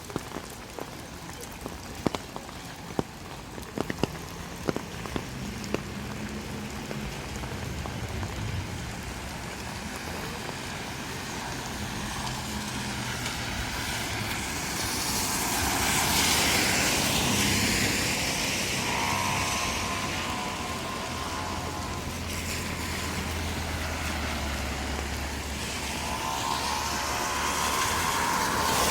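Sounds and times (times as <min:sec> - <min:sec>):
tyres hissing through water: 0:00.1 - 0:28.9
car engine hum: 0:16.2 - 0:28.9.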